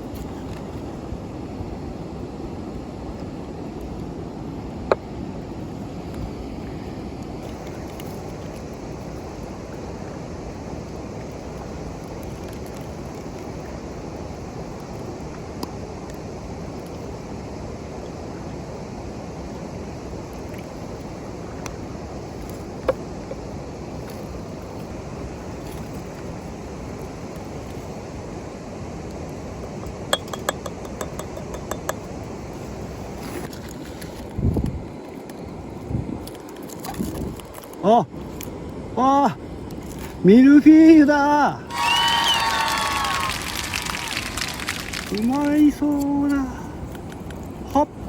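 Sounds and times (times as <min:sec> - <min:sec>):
wind noise: 0:00.0 - 0:38.3
tableware clinking: 0:30.1 - 0:32.0
low rushing outdoor noise: 0:38.0 - 0:48.0.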